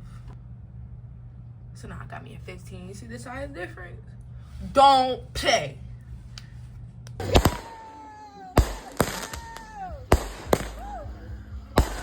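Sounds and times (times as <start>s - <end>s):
sharp bangs: 7.2s - 8.0s, 8.6s - 11.2s, 11.8s - 12.0s.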